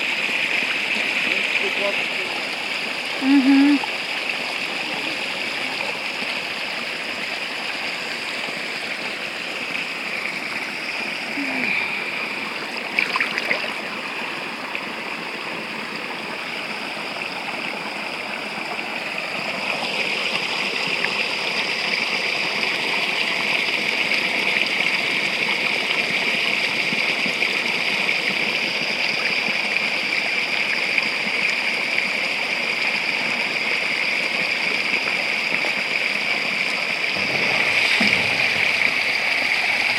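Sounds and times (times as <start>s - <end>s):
spring water running and splashing: 0.0s - 39.9s.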